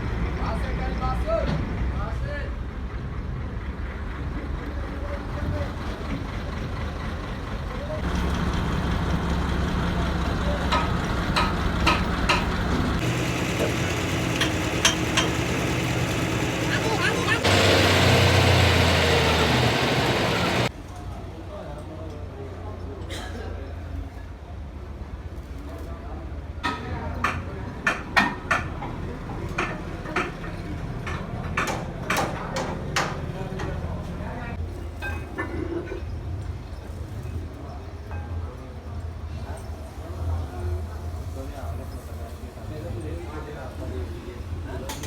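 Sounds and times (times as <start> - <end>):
truck engine idling: 5.8 - 20.7
hammer striking metal: 10.7 - 12.5, 13.4 - 16.7
metal tools clanking on steel: 10.7 - 17.6.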